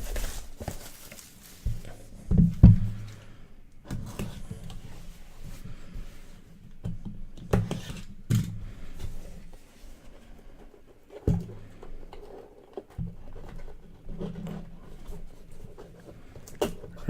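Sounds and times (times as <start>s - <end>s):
box rustling: 0.0s - 2.2s.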